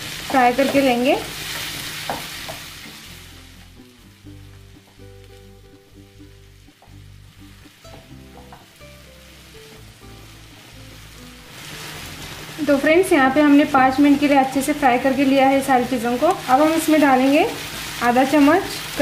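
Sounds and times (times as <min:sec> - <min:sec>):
food sizzling in a pan: 0:00.0 - 0:19.0
soft background music: 0:00.0 - 0:19.0.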